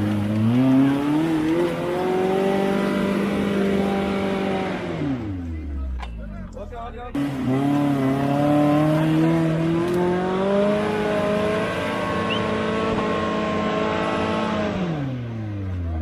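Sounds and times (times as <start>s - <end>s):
engine running at high revs: 0.0s - 5.5s, 7.2s - 16.0s.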